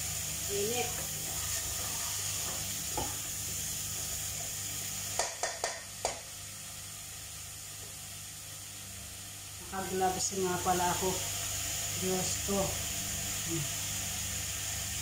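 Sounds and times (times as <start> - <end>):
squash sizzling in a pot: 0.0 - 15.0
spatula knocking against pot: 5.2 - 6.2.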